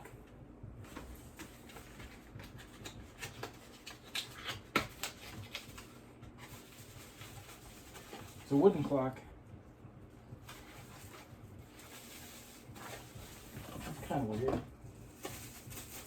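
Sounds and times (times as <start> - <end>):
rustling: 5.0 - 9.0, 10.4 - 16.0.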